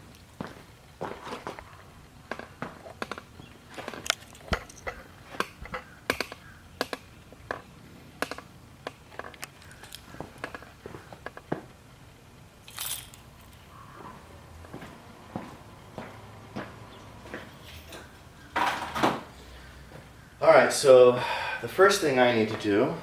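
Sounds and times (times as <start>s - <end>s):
tools being handled clicking: 3.9s - 7.6s, 12.7s - 13.8s.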